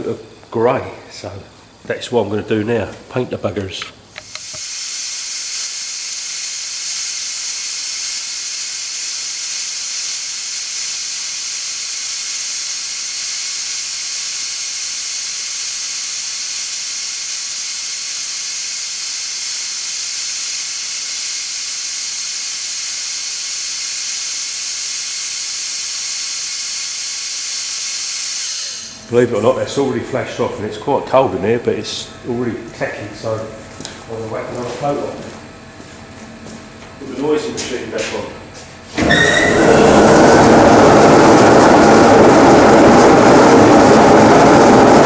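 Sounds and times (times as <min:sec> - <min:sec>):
paint spray gun hissing: 0:04.2 - 0:29.2.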